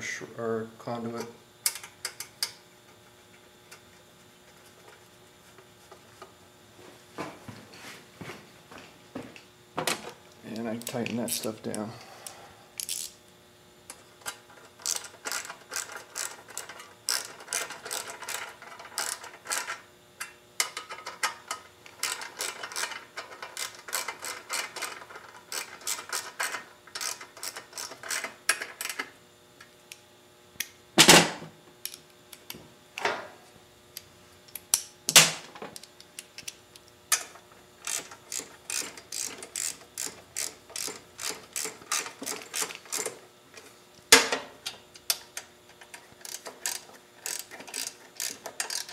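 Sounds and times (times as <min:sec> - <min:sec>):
socket ratchet clicking: 0:35.8 - 0:43.1, 0:45.9 - 0:48.9.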